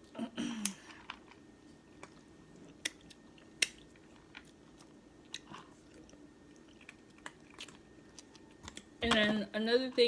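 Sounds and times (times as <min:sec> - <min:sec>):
person chewing crab: 0:02.0 - 0:09.0.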